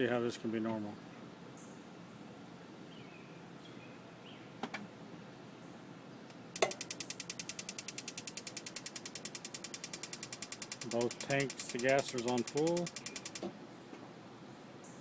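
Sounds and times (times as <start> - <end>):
spark igniter clicking rapidly: 6.6 - 13.5.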